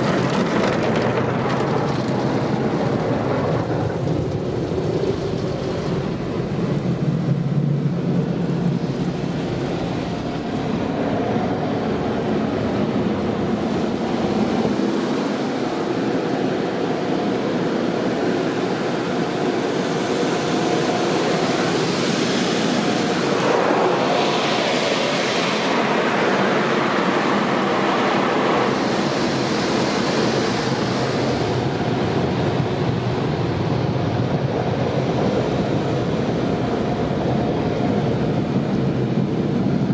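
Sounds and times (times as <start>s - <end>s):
car wash machinery roaring: 0.0s - 39.9s
rushing water hiss: 4.0s - 33.3s.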